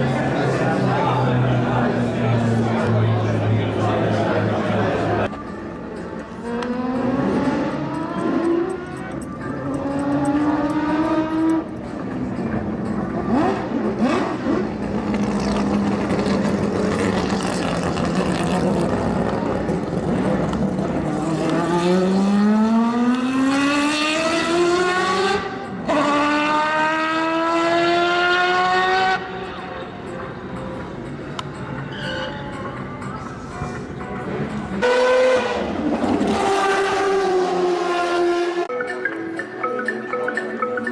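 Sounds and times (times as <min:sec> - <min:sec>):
race car engine accelerating: 0:13.1 - 0:29.4, 0:34.8 - 0:38.7.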